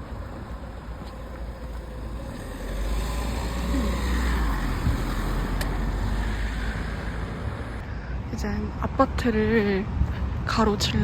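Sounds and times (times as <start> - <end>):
vehicle driving past: 0.0 - 7.8.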